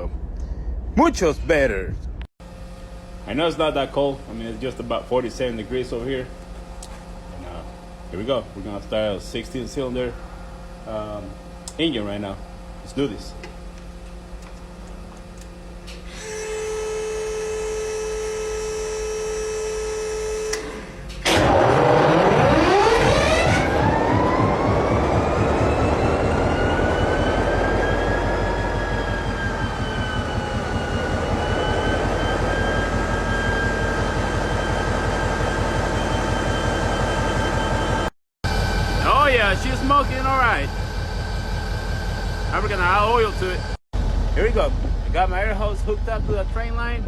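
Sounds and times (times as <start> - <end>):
steady humming tone: 2.1 - 47.0
locomotive diesel engine starting: 20.1 - 47.0.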